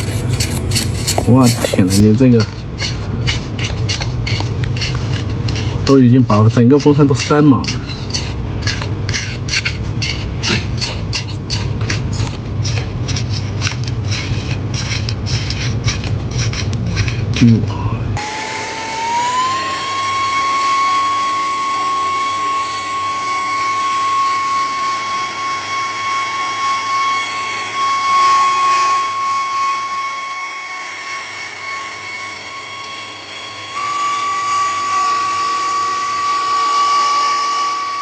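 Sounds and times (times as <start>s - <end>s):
scraping strokes: 0.0s - 17.8s
small electric motor whining: 18.2s - 38.0s.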